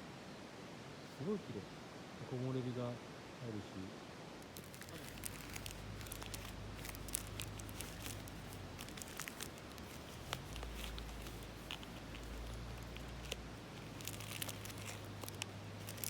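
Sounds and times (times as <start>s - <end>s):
low steady hum: 3.9s - 16.0s
crinkling and clicking: 4.4s - 16.0s.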